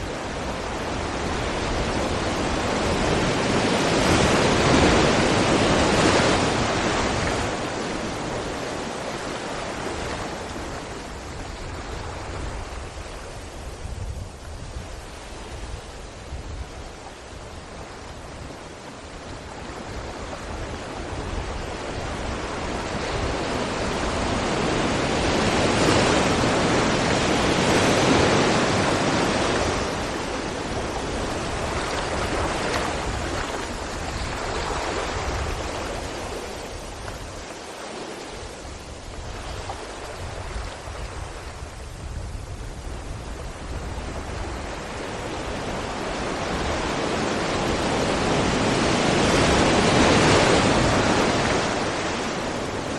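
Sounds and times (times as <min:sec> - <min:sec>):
waves breaking against rocks: 0:19.5 - 0:41.4.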